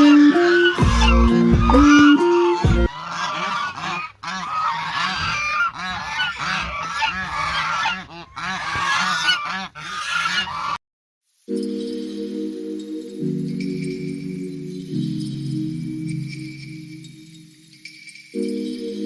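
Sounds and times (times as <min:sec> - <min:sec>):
held music tones: 0:00.0 - 0:03.0
waterfowl honking: 0:00.0 - 0:10.8.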